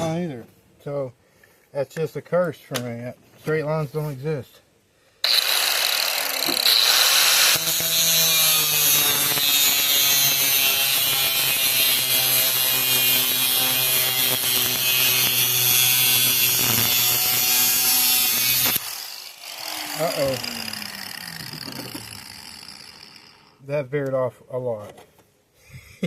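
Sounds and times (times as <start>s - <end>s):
cutoff wheel cutting metal: 5.2s - 23.6s
high motor whine: 17.7s - 23.6s.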